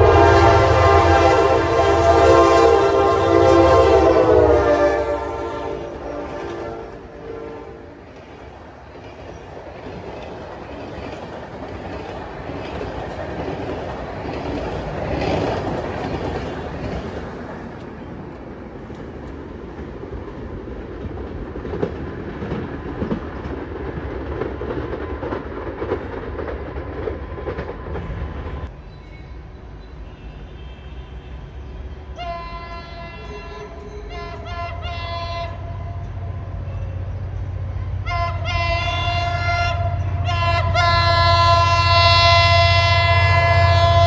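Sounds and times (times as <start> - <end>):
train wheels clattering over joints: 8.1 - 18.2, 19.3 - 28.7.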